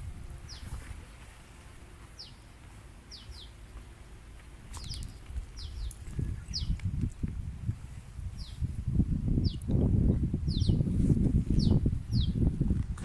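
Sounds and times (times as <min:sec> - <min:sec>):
birds chirping: 0:00.4 - 0:00.7, 0:02.1 - 0:03.8, 0:04.7 - 0:06.8, 0:10.5 - 0:10.8.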